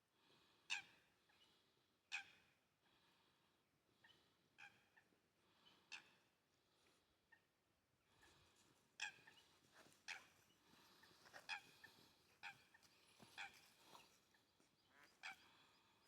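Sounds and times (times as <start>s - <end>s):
water bird calls: 9.0s - 16.0s.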